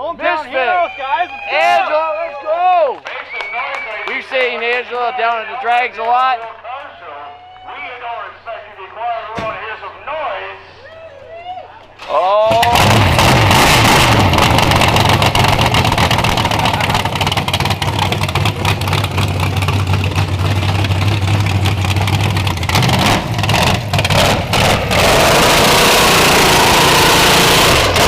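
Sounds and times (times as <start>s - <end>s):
engine throttle blips: 12.5s - 28.0s
race car engine idling loudly: 12.5s - 28.0s.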